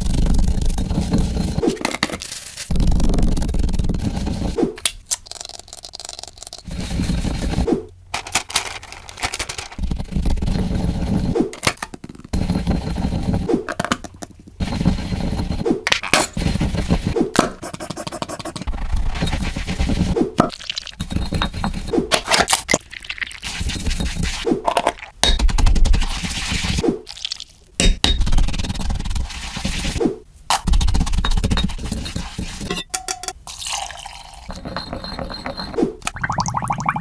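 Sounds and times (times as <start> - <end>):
rustling and scraping: 0.0 - 4.6, 6.7 - 11.6.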